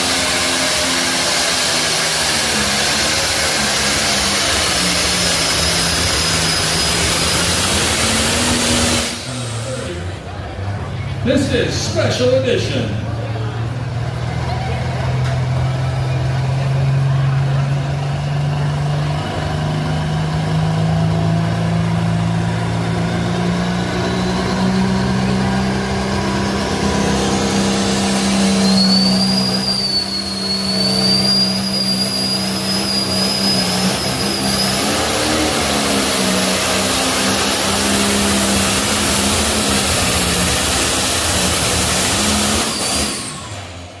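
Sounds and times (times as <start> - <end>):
high turbo whistle: 0.0 - 9.8, 23.9 - 43.7
diesel engine under load: 0.0 - 44.0.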